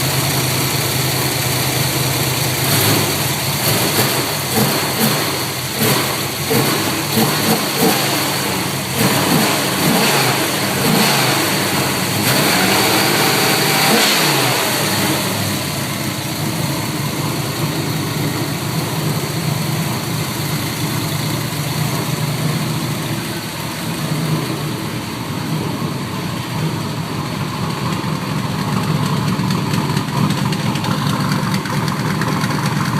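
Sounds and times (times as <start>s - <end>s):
car engine revving and idling: 0.0s - 32.9s.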